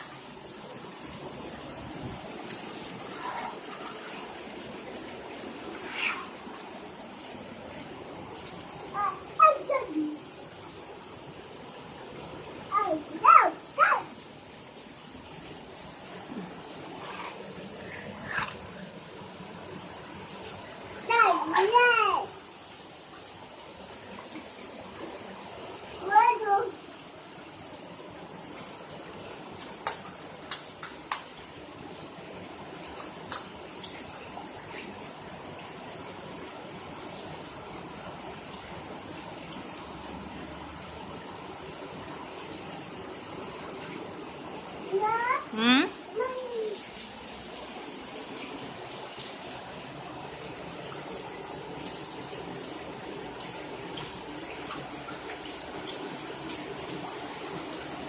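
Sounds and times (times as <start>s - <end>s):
steady rain falling: 0.0s - 58.0s
sharp taps or splashes: 29.5s - 31.5s, 32.8s - 34.1s.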